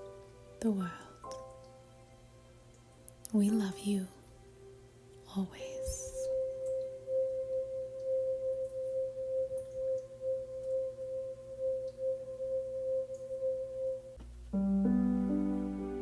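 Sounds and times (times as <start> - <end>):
sustained metal ringing tone: 5.6 - 16.0.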